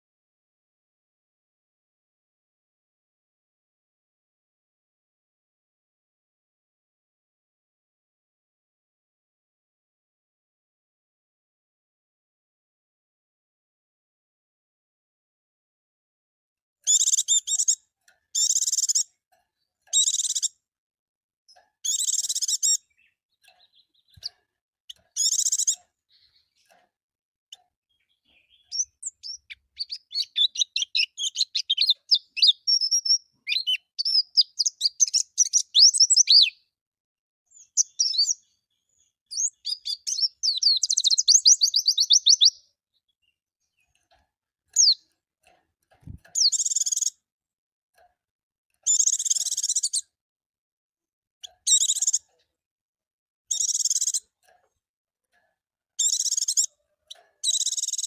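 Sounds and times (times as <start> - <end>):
bird twittering song: 16.8 - 20.6, 21.5 - 26.8, 27.5 - 36.7, 37.5 - 44.1, 44.7 - 45.1, 46.0 - 47.2, 48.8 - 50.1, 51.4 - 52.4, 53.5 - 54.3, 56.0 - 58.0.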